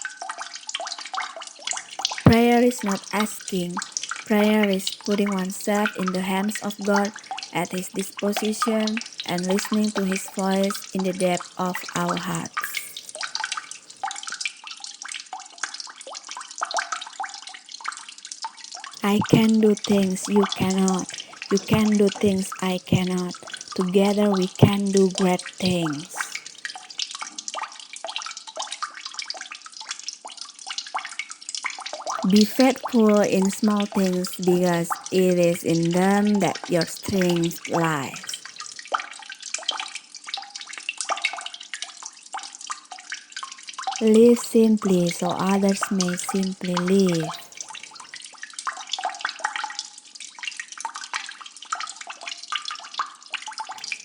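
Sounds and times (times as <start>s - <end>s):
water trickling: 0.0s - 54.0s
water drops plinking: 1.7s - 14.4s, 19.0s - 26.8s, 32.0s - 38.6s, 44.0s - 48.1s.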